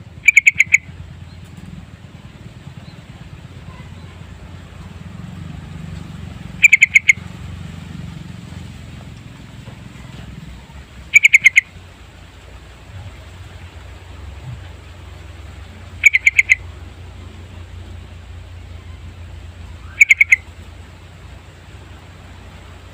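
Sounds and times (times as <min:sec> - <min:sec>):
bulbul calling: 0:00.0 - 0:01.7, 0:06.5 - 0:07.4, 0:09.9 - 0:11.9, 0:15.6 - 0:20.7
steady low hum: 0:00.0 - 0:22.9.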